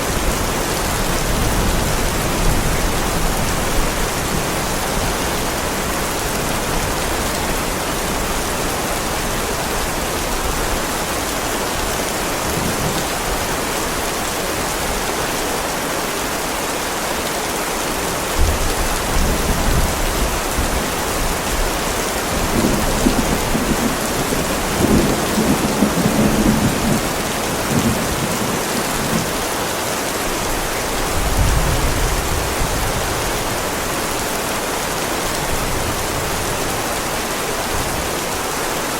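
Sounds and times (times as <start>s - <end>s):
heavy rain on a driveway: 0.0s - 38.9s
thunder rumbling: 18.4s - 29.5s.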